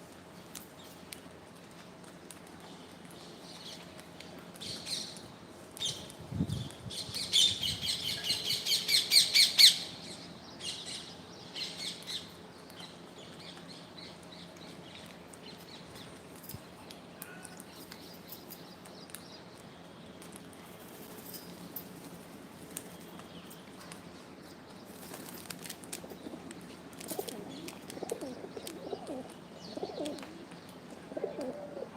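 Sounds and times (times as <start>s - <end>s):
faint scattered clicks: 0.4s - 6.2s, 11.9s - 31.6s.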